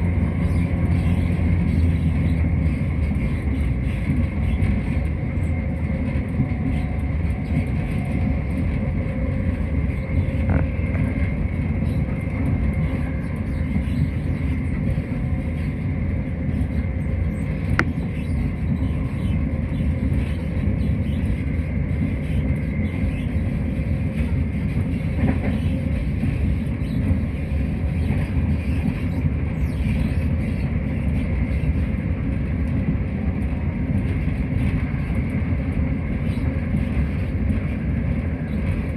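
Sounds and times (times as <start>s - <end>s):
train interior rumble: 0.0s - 38.9s.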